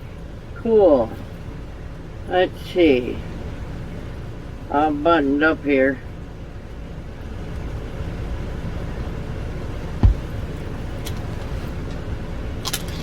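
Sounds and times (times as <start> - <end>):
dull thump: 10.0 - 10.6.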